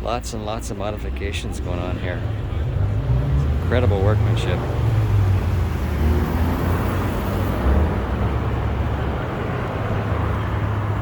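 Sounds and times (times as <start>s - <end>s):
outdoor background noise: 0.0s - 11.0s
car engine idling: 0.2s - 5.9s.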